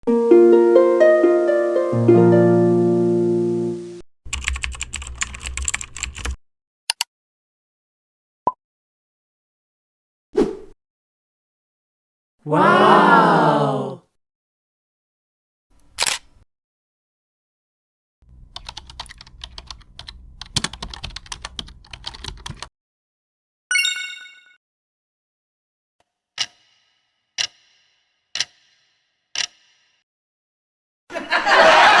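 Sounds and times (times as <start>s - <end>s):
harp-like plucked notes: 0.1s - 3.6s
computer keyboard typing: 4.3s - 6.4s, 18.3s - 22.7s
quick clicks: 15.8s - 16.4s
bright bell-like ding: 23.7s - 24.6s.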